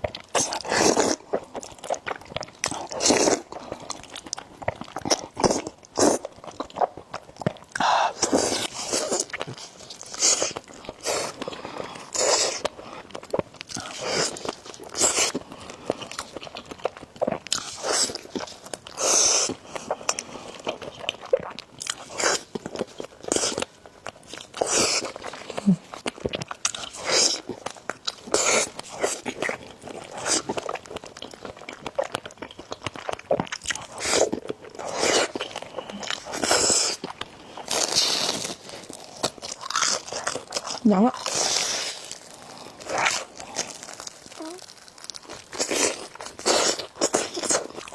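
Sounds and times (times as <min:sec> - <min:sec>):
person chewing food: 0:00.0 - 0:47.9.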